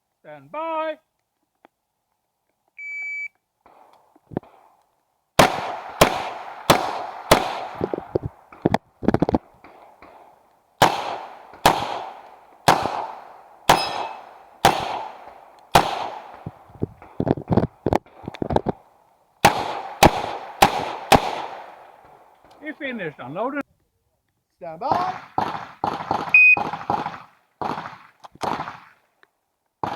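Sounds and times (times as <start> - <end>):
shot timer beep: 2.8 - 3.3, 13.7 - 14.2, 26.4 - 26.6
pistol firing single shots: 5.4 - 8.6, 9.6 - 17.2, 19.4 - 22.4, 24.9 - 29.0.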